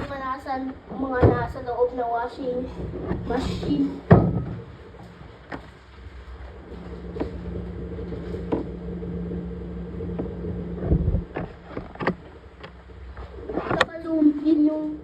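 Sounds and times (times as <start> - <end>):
washing machine humming: 0.0 - 15.0
heavy thump: 3.0 - 4.7.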